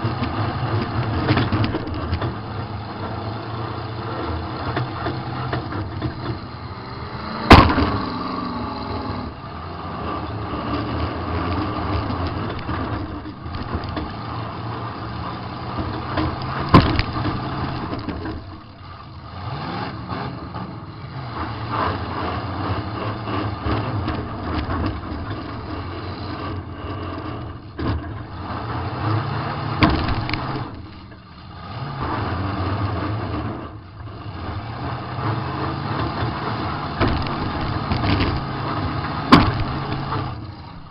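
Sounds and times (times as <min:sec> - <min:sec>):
car engine revving: 0:00.0 - 0:40.9
car crash impacts: 0:07.2 - 0:08.1, 0:16.6 - 0:18.7, 0:39.2 - 0:40.9.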